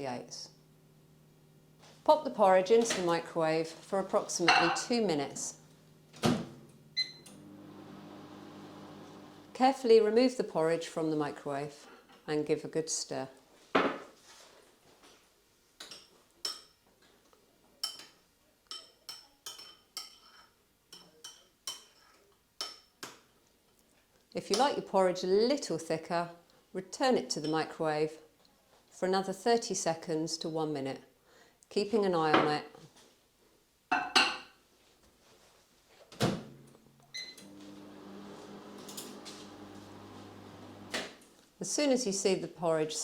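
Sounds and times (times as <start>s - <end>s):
microwave oven humming: 6.8s - 9.6s, 37.2s - 41.1s.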